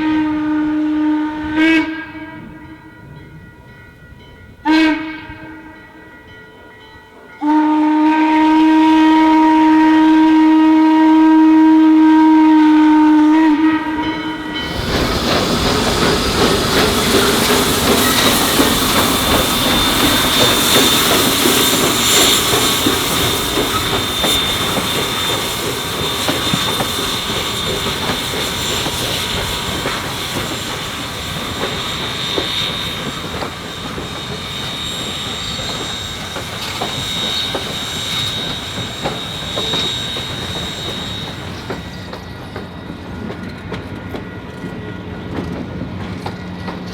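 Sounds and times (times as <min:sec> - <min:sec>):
high wheel squeal: 0:13.1 - 0:42.8
train wheels clacking on track: 0:13.1 - 0:46.9.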